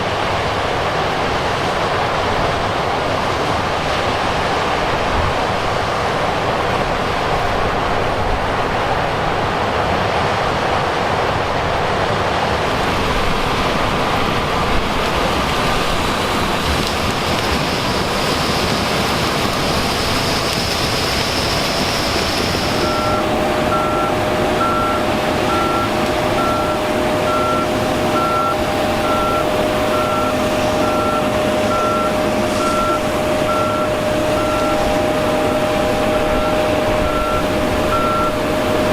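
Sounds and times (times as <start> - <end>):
heavy machinery running: 16.3 - 38.9
steady hum: 21.8 - 38.9
backup alarm beeping: 22.7 - 38.9.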